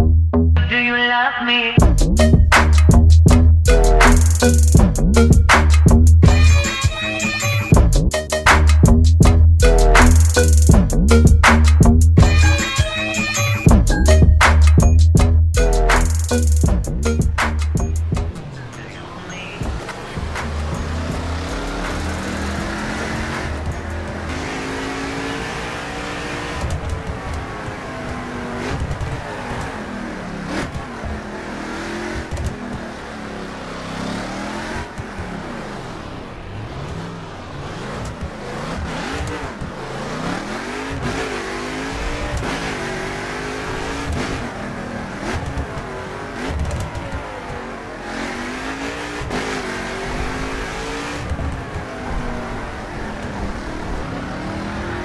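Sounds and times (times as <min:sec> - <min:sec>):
car engine revving and accelerating: 0:15.8 - 0:55.0
engine sharp cracks: 0:15.9 - 0:47.7.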